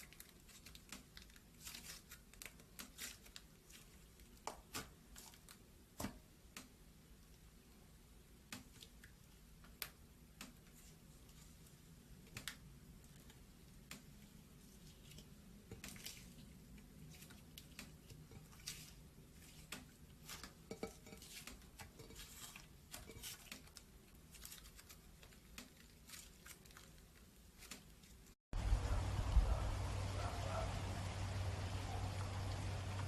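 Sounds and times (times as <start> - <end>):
slime squelching by hand: 8.6 - 28.4.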